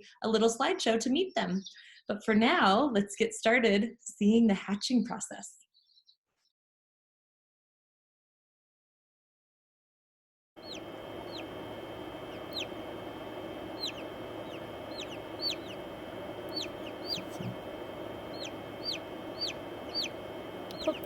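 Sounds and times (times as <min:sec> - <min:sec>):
chick peeping: 0:10.6 - 0:21.0
steady low hum: 0:10.6 - 0:21.0.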